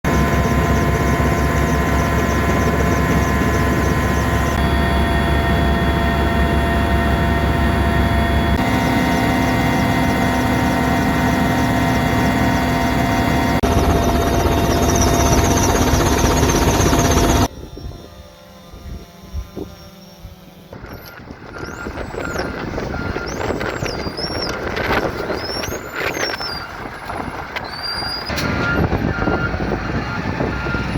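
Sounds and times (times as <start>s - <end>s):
helicopter engine and rotor: 0.0s - 30.9s.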